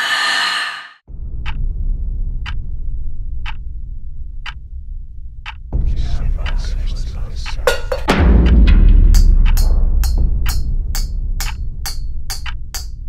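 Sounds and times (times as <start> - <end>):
clock ticking: 5.4 - 11.6.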